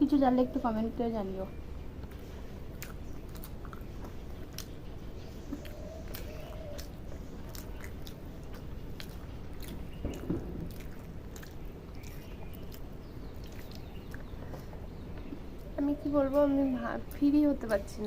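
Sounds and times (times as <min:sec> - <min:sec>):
people chewing food: 0:00.0 - 0:18.0
wet mouth smacks and clicks: 0:02.8 - 0:04.8, 0:05.5 - 0:14.3.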